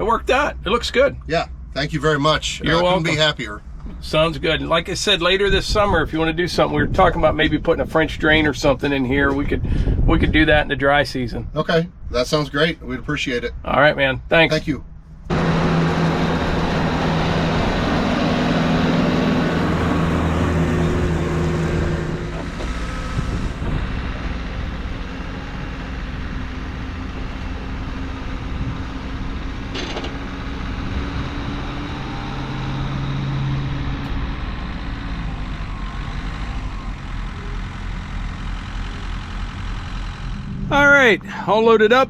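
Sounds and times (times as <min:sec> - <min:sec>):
vehicle engine running: 0:15.0 - 0:42.0.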